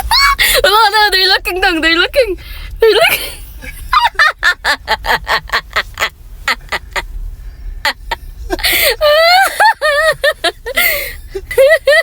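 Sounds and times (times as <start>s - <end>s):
person laughing hard: 7.8s - 12.0s.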